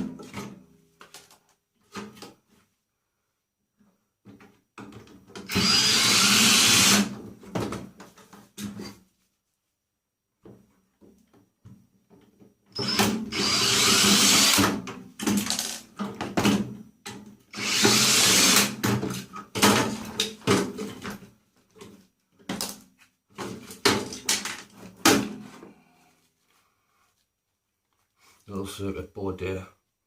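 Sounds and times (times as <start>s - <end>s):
power drill running: 5.5s - 7.1s, 12.8s - 14.8s, 17.5s - 18.8s.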